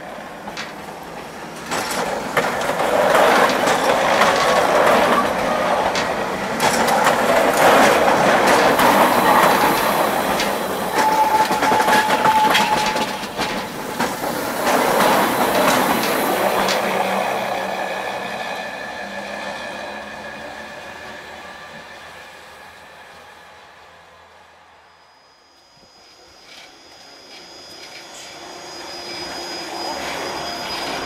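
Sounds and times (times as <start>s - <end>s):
wheels clicking over track: 0.1s - 17.3s
train wheel squeal: 0.5s - 31.0s.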